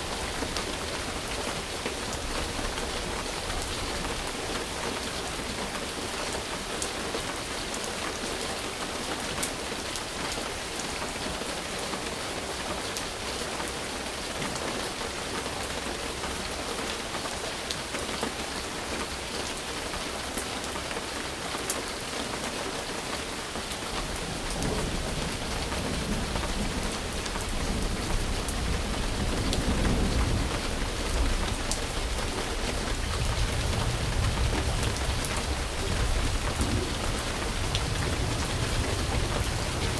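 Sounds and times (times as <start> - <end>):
steady rain: 0.0 - 39.9
low thunder rumble: 24.0 - 39.9.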